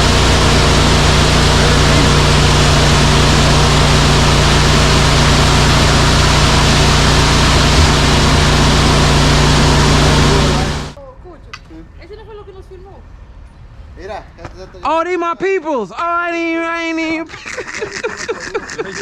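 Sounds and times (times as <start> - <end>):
loud rushing noise: 0.0 - 11.0
truck diesel engine running: 0.0 - 11.0.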